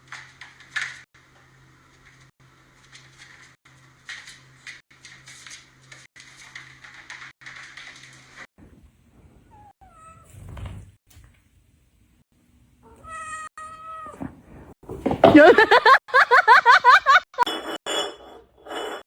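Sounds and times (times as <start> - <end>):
cat meowing: 12.8 - 14.3.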